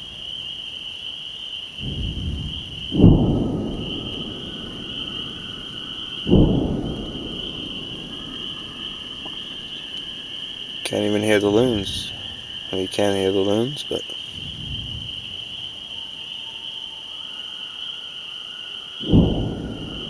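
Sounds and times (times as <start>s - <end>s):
spring peepers chorus: 0.0s - 20.0s
thunder rolling: 1.8s - 16.2s, 19.0s - 20.0s.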